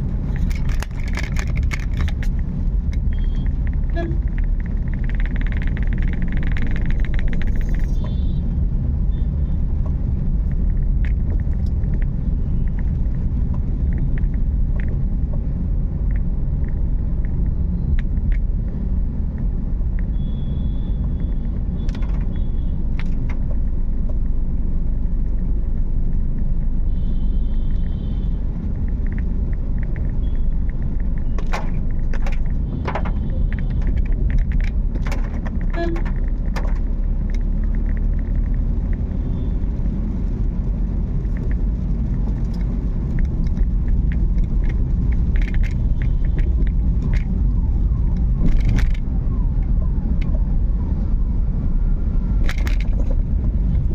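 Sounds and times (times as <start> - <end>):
car road and engine rumble: 0.0 - 53.9
sharp ticks: 0.5 - 8.0.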